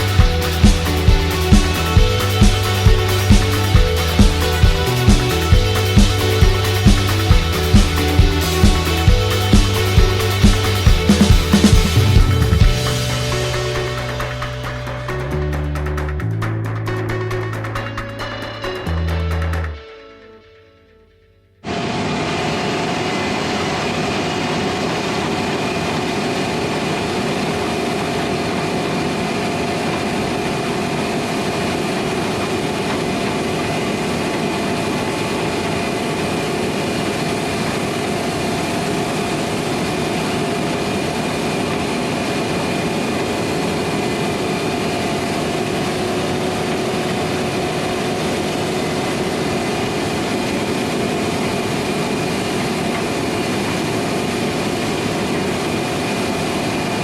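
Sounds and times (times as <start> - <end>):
harvest machinery engine drone: 0.0 - 16.1, 21.7 - 57.0.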